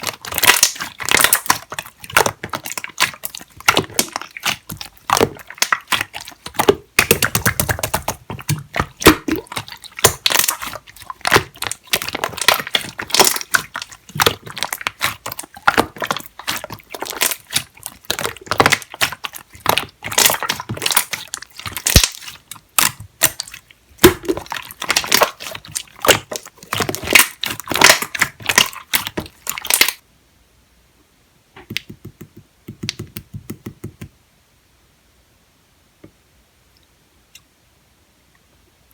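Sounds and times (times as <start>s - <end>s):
slime squished by hand: 0.0s - 30.0s.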